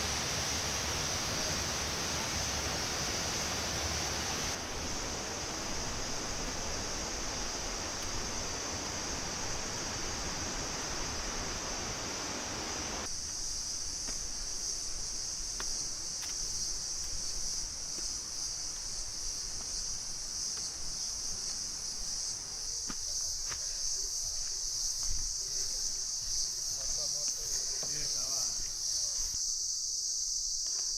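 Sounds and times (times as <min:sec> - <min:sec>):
waterfall rushing: 0:00.0 - 0:13.1
forest insects droning: 0:00.0 - 0:30.9.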